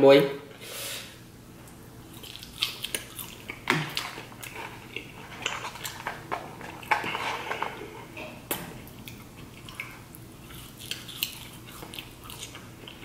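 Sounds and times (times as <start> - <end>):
mouth chewing wet smacks: 2.1 - 7.1, 8.9 - 13.0.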